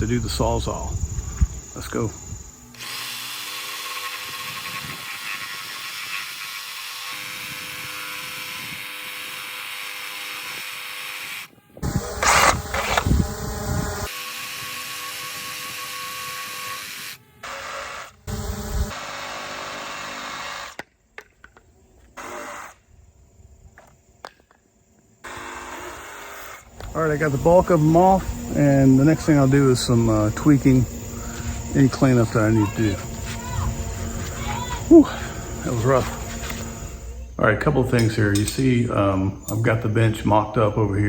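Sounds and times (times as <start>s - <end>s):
reciprocating saw cutting wood: 2.6s - 20.9s, 22.1s - 22.8s, 25.2s - 37.2s.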